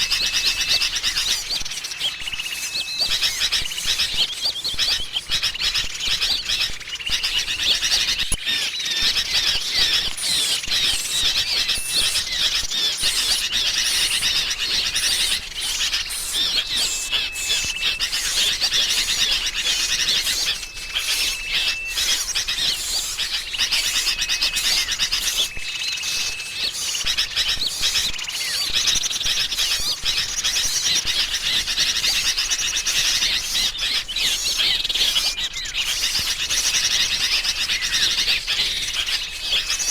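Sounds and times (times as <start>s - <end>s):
bulbul calls: 0.0s - 39.9s
songbirds chirping: 0.0s - 39.9s
thin steady whistles: 0.0s - 39.9s.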